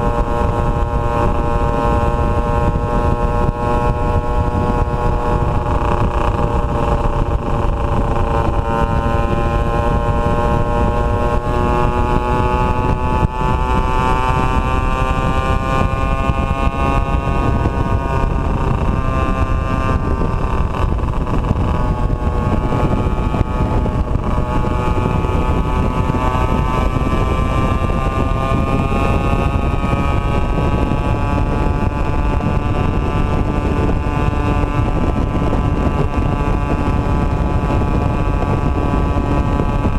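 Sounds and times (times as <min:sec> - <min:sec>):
two-stroke motorcycle engine: 0:00.0 - 0:39.9
wind rumble on microphone: 0:00.0 - 0:39.9.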